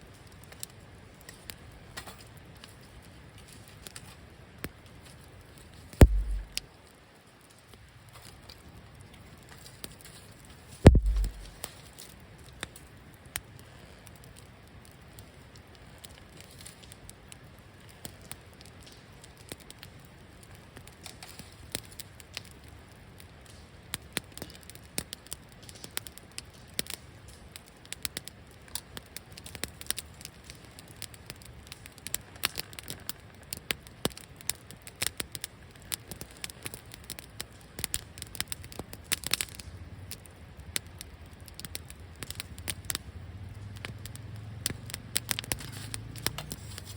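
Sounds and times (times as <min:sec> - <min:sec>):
wood fire popping: 0:00.0 - 0:46.9
low rush of burning: 0:06.0 - 0:06.6, 0:10.9 - 0:11.7, 0:39.7 - 0:46.9.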